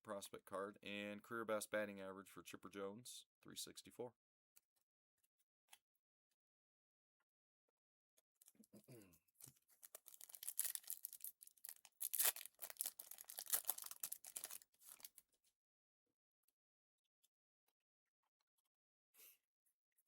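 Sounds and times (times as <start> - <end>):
foil wrapper tearing and crinkling: 9.7 - 15.2.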